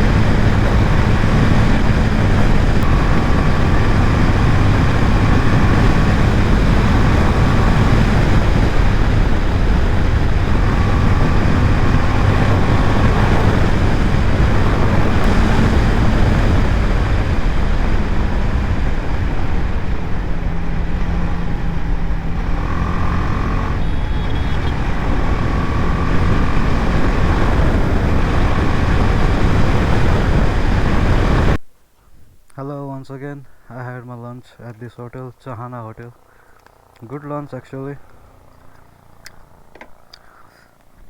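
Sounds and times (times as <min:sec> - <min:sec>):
motorcycle engine running: 0:00.0 - 0:31.6, 0:36.7 - 0:40.1
wind rush: 0:00.0 - 0:31.6.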